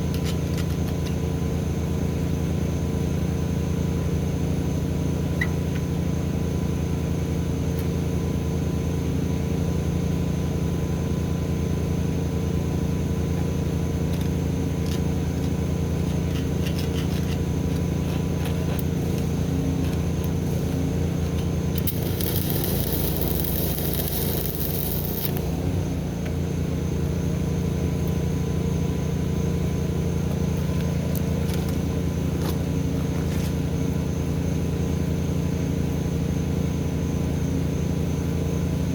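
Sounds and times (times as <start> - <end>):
engine humming: 14.1 - 28.7
high hiss: 21.8 - 25.7.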